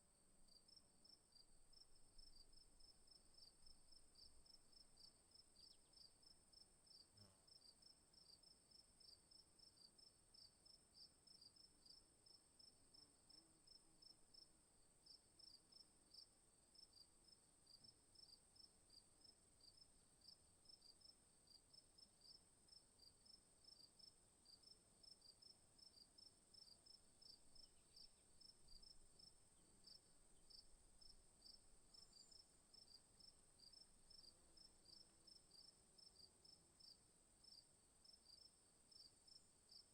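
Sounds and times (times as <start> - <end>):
insect chorus: 22.2 - 39.9.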